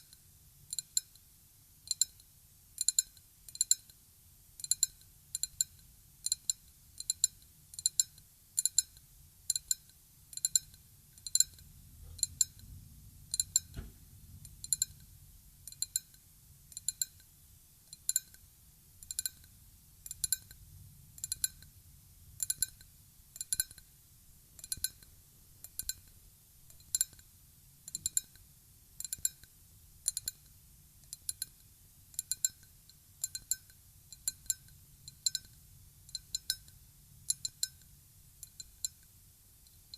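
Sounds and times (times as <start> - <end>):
glass being tapped: 13.3 - 13.9, 14.6 - 15.0, 16.8 - 17.2, 24.6 - 25.1, 32.2 - 39.1.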